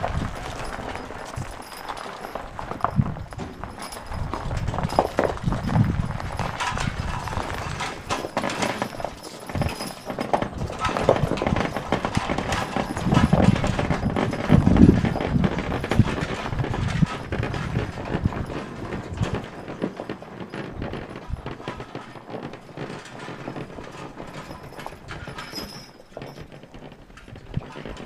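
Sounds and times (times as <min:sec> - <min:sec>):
hooves clopping: 0:00.0 - 0:28.0.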